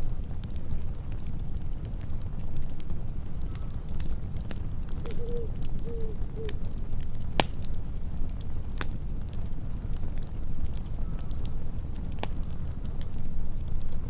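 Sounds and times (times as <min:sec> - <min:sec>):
campfire crackling: 0:00.0 - 0:14.0
crickets chirping: 0:00.1 - 0:14.0
night animal calls: 0:05.0 - 0:06.6.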